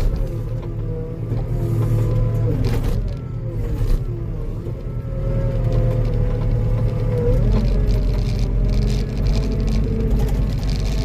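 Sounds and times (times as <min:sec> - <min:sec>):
skid steer engine running: 0:00.0 - 0:11.0.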